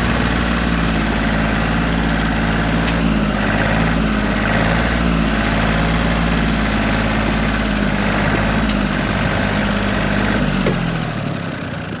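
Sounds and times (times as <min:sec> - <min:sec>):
tractor engine rumbling: 0:00.0 - 0:12.0.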